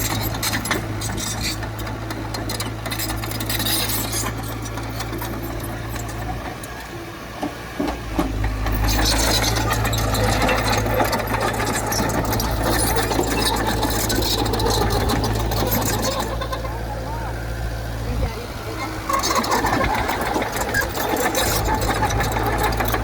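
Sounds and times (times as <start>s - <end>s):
metallic rattling and clatter: 0.0s - 6.6s, 7.8s - 16.8s, 18.8s - 23.0s
diesel engine running: 0.0s - 23.0s.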